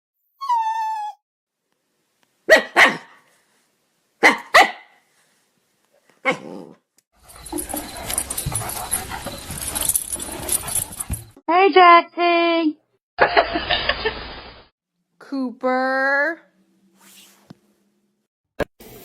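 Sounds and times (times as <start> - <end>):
dog whining: 0.3 - 1.2, 6.2 - 11.4
dog barking: 2.5 - 3.2, 4.2 - 5.0.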